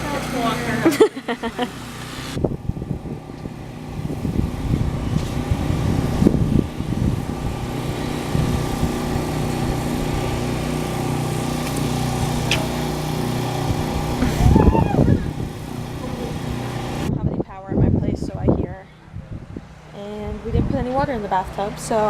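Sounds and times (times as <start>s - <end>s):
engine running steadily: 0.0s - 22.0s
sound rising in pitch: 13.8s - 16.6s.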